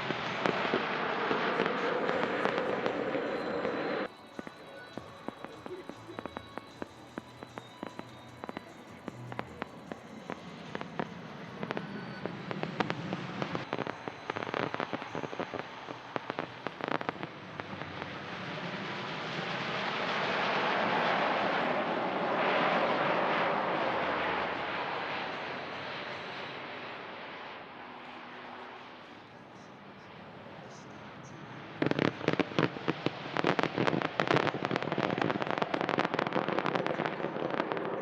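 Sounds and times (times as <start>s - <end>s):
fireworks crackling: 0.0s - 27.5s, 30.1s - 38.0s
broad rushing noise: 0.0s - 27.9s.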